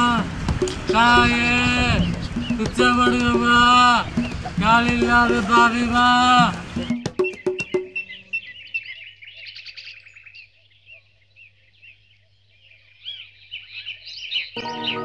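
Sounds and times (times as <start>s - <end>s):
birds chirping: 0.0s - 15.0s
music: 0.5s - 8.0s, 14.6s - 15.0s.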